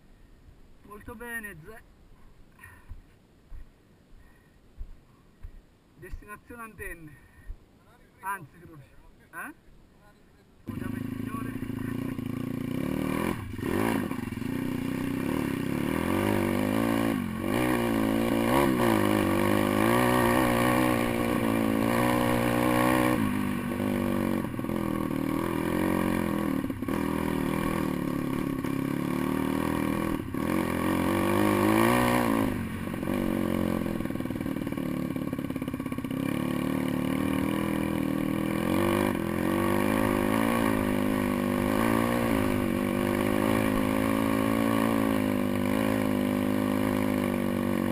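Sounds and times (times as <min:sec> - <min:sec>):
small motorbike engine revving: 0:10.7 - 0:47.9.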